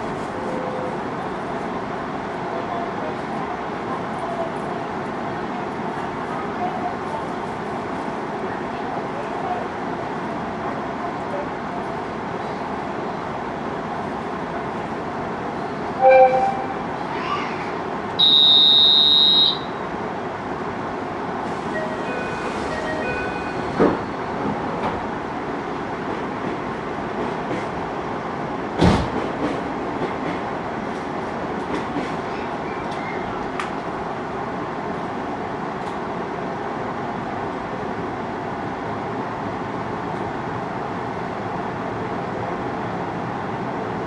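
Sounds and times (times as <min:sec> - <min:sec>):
electric train humming: 0:11.9 - 0:17.2
short beeps: 0:16.0 - 0:16.7.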